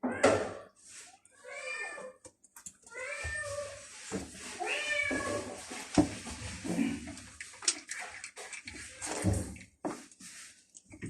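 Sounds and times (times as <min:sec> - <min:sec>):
cats meowing: 0:01.3 - 0:02.2, 0:02.8 - 0:05.7.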